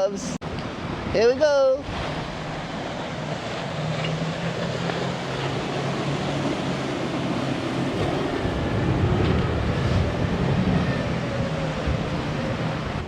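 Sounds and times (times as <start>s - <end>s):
surf washing: 0.0s - 13.0s
wind: 0.0s - 13.0s
boat engine droning: 1.8s - 13.0s.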